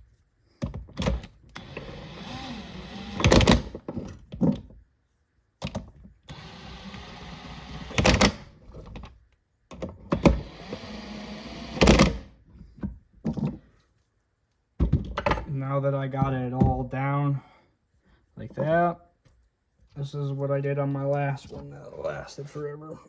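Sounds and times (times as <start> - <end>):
cordless power tool motor: 1.0 - 3.8, 6.3 - 8.5, 10.1 - 12.3.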